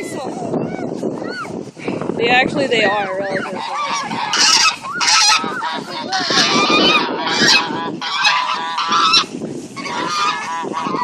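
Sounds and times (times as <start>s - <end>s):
geese honking: 2.8s - 11.0s.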